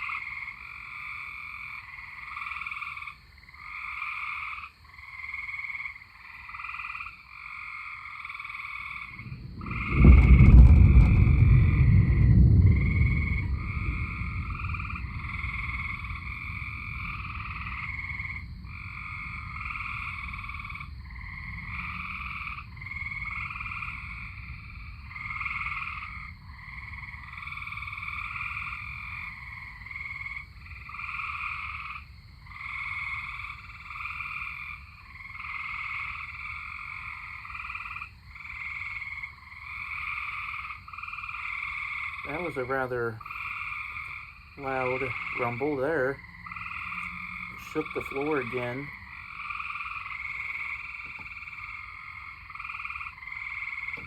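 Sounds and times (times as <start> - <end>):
tree frogs trilling: 0.0 - 54.0
thunder rumbling: 8.9 - 32.0, 41.4 - 53.0.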